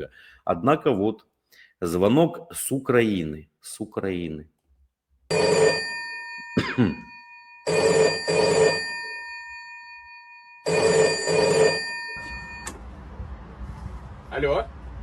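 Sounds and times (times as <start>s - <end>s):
telephone bell ringing: 5.3s - 12.7s.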